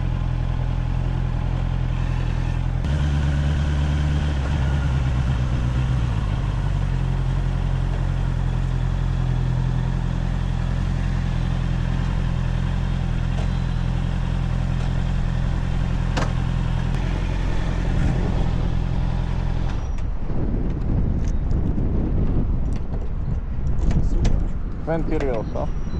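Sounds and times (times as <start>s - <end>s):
motorcycle engine idling: 0.0s - 19.9s.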